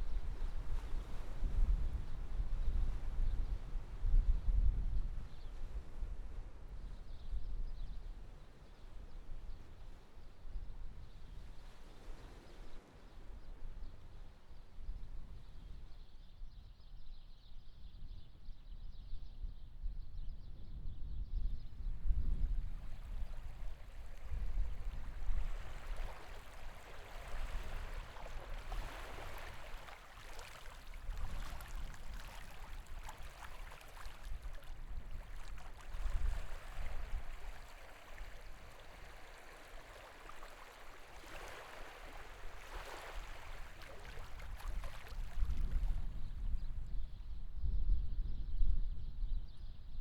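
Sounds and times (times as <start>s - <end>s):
wind buffeting microphone: 20.4s - 39.6s, 42.0s - 50.0s
sea water washing: 23.1s - 46.1s.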